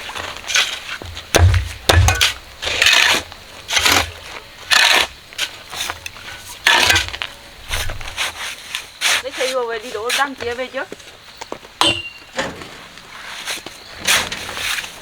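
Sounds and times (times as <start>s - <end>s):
scraping and knocking strokes: 12.5s - 15.0s.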